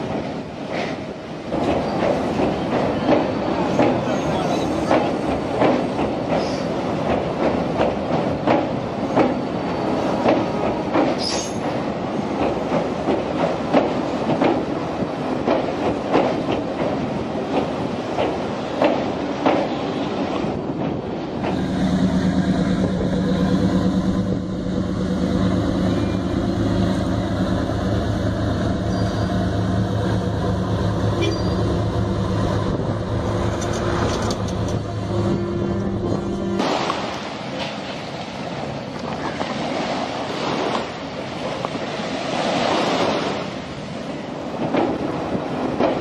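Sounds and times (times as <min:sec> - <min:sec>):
train wheels clattering over rail joints: 0:00.0 - 0:35.0, 0:44.4 - 0:46.0
low engine drone: 0:21.5 - 0:36.7.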